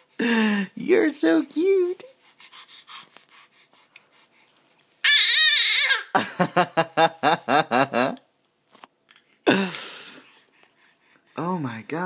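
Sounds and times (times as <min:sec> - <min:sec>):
baby squealing and babbling: 0:05.0 - 0:06.1.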